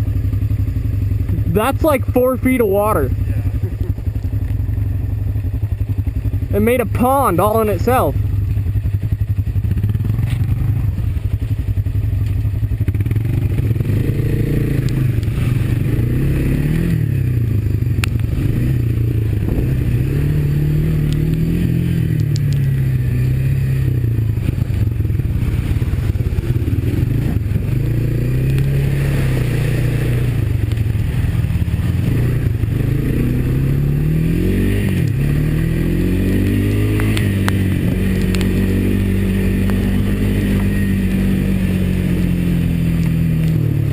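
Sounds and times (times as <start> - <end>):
atv engine revving: 0.0 - 43.9.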